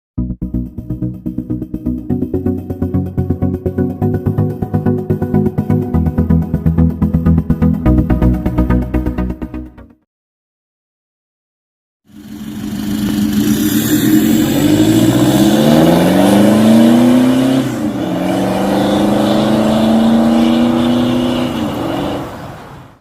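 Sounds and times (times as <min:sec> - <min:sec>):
car engine accelerating through exhaust: 0:12.1 - 0:22.9.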